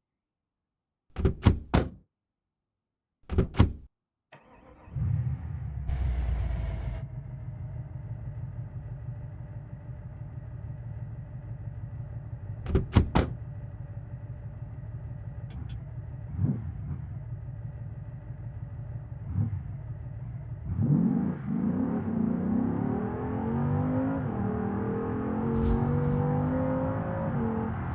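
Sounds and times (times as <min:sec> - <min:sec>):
car engine idling: 0:04.4 - 0:20.7.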